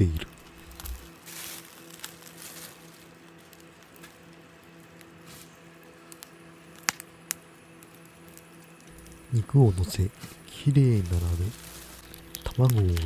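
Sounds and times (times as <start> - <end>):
low hum: 0.0 - 1.1, 8.8 - 13.0.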